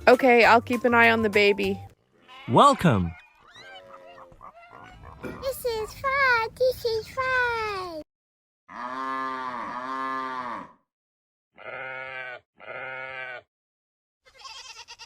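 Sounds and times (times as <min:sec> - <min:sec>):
sheep bleating: 0:02.1 - 0:05.5, 0:11.6 - 0:13.5, 0:14.2 - 0:15.0.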